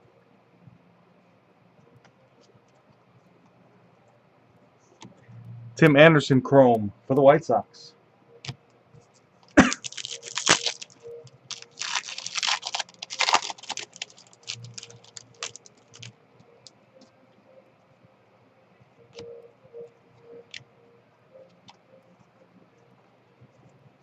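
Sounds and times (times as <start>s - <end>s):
wrapper crinkling: 9.4s - 16.1s.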